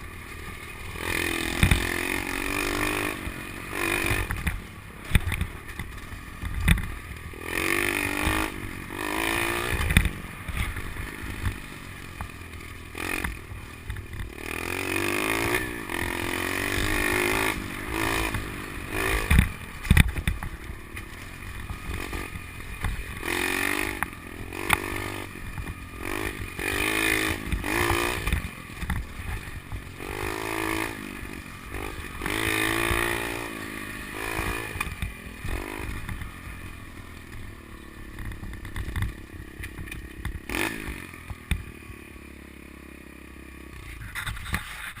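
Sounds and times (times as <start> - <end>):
dirt bike engine revving: 0.0 - 45.0
bike knocking over bumps: 1.5 - 2.2, 4.0 - 7.1, 15.4 - 30.9, 38.1 - 41.7.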